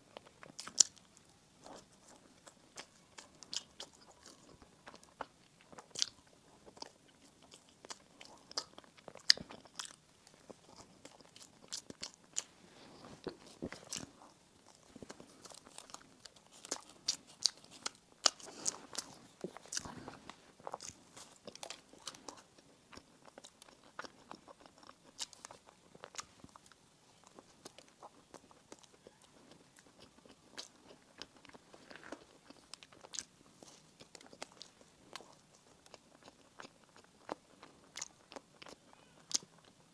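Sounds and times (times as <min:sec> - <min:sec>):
person chewing crisp bread: 0:00.0 - 0:39.9.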